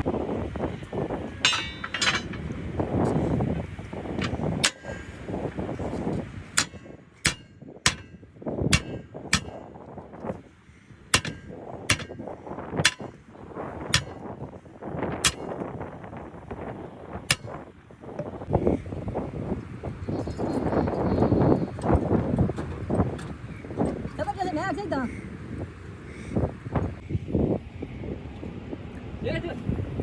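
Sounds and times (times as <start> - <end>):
low background rumble: 0.0 - 25.2
sharp metallic clanks: 1.2 - 3.4, 4.2 - 5.4, 6.0 - 9.8, 11.2 - 14.3, 15.1 - 15.8, 17.3 - 18.4.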